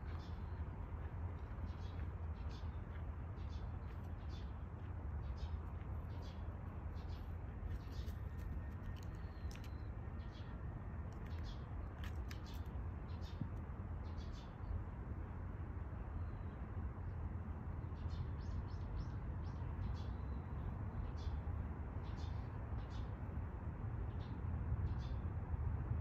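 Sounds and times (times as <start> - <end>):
small birds chirping: 0.0 - 14.8, 17.8 - 25.3
low outdoor rumble: 0.0 - 18.1.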